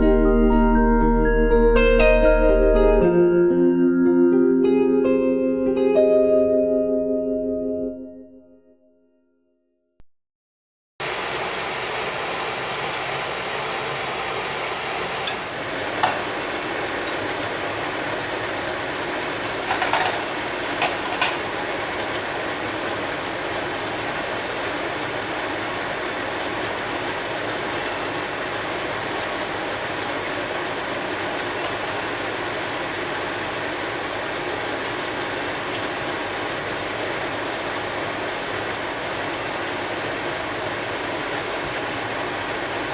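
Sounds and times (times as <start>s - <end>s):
stir-fry sizzling in a pan: 11.0s - 42.9s
utensil clicking against pan: 15.2s - 16.3s.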